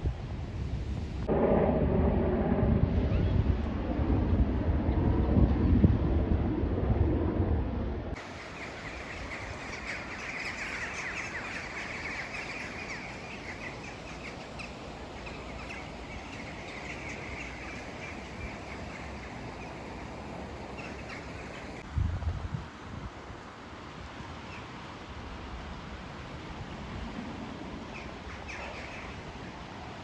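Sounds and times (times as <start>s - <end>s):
wind buffeting microphone: 0.0s - 23.4s
small birds chirping: 8.2s - 21.8s.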